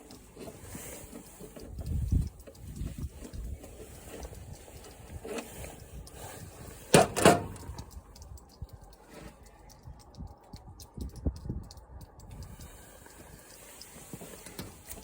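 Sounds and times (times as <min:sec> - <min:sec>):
faint clicks: 0:00.0 - 0:15.0.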